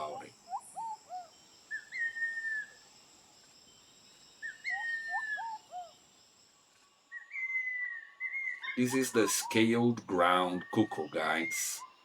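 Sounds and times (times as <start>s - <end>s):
high insect drone: 0.0s - 12.0s
bird singing whistled phrase: 1.7s - 2.7s, 7.1s - 11.9s.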